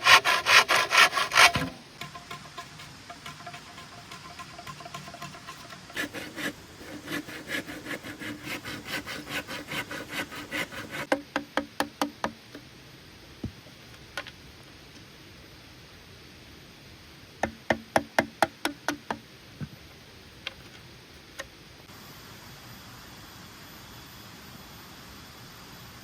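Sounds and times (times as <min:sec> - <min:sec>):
hand saw cutting wood: 0:00.0 - 0:11.2
sharp wooden knocks: 0:01.0 - 0:12.4.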